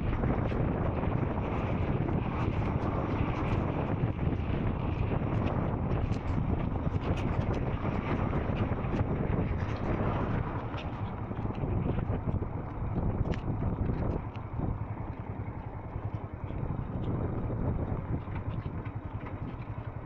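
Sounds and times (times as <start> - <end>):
wind buffeting microphone: 0.0 - 20.0
motorcycle engine running: 8.1 - 20.0.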